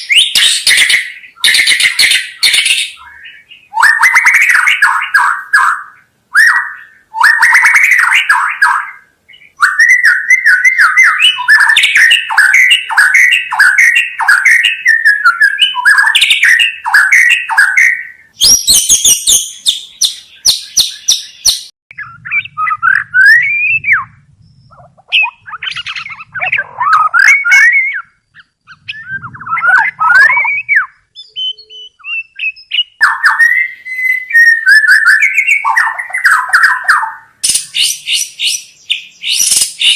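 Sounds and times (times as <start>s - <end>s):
harsh rattling bird call: 0.0s - 21.7s, 32.8s - 39.9s
bird singing: 0.0s - 39.9s
bird whistling with rising glides: 0.0s - 39.9s.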